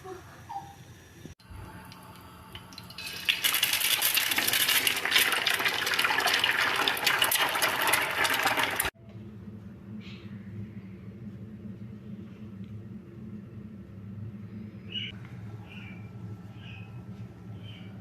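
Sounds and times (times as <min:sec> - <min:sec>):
water gushing: 0:02.7 - 0:08.9.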